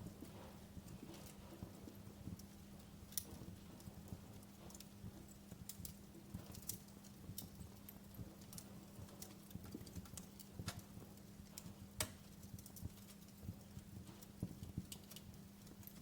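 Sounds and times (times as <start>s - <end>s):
faint steady hum: 0.0s - 16.0s
wood fire crackling: 0.0s - 16.0s.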